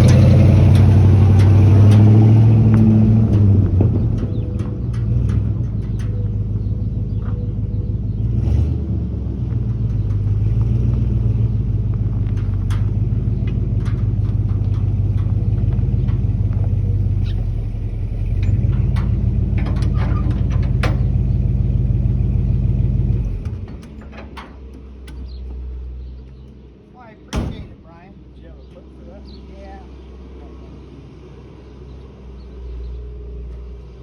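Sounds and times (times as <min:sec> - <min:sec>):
clinks and rattles: 0:00.0 - 0:08.4, 0:09.4 - 0:26.6
pickup truck engine running: 0:00.0 - 0:29.4.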